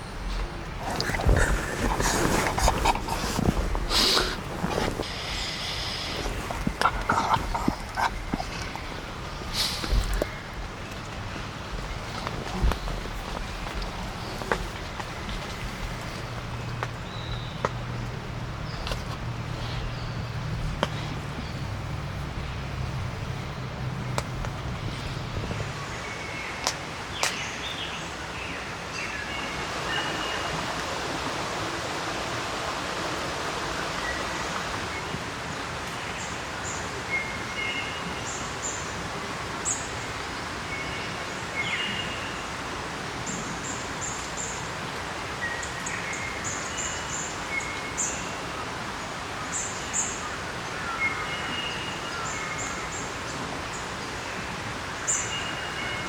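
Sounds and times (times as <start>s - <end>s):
birds chirping: 0.0s - 30.7s
steady outdoor hiss: 0.0s - 56.0s.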